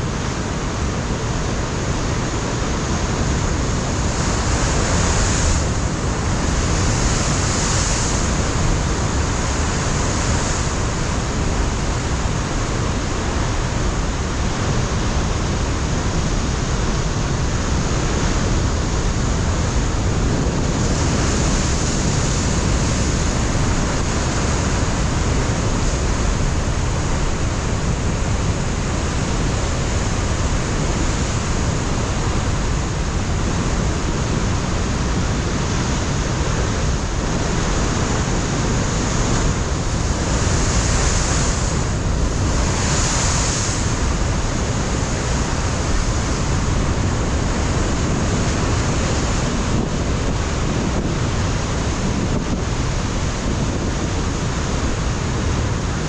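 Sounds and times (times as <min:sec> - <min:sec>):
wind on microphone: 0:00.0 - 0:56.0
surf breaking on rocks: 0:37.4 - 0:49.4.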